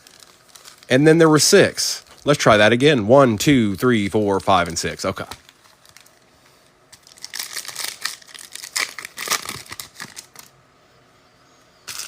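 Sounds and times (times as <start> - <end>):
foil wrapper tearing and crinkling: 0.0 - 1.1, 4.3 - 6.3, 6.9 - 10.5.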